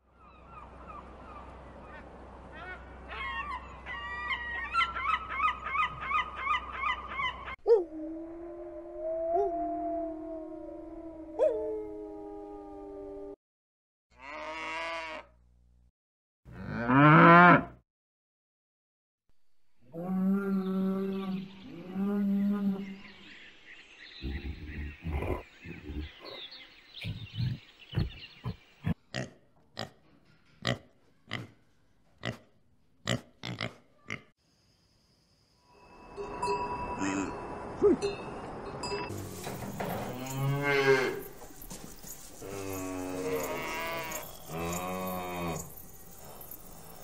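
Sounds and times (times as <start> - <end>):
cow mooing: 14.2 - 15.2, 16.5 - 17.8, 40.0 - 41.3, 42.4 - 45.7
animal bleating: 14.2 - 15.3.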